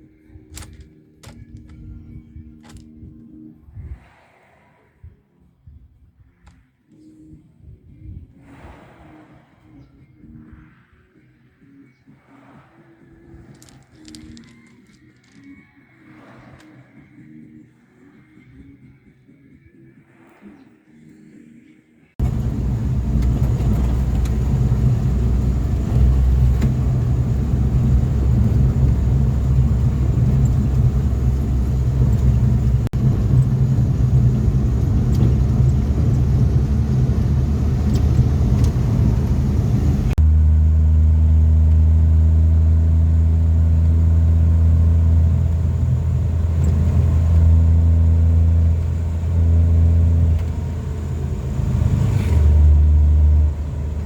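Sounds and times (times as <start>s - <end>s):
vehicle engine rumbling: 0.0s - 3.1s, 13.3s - 15.4s, 22.2s - 54.0s.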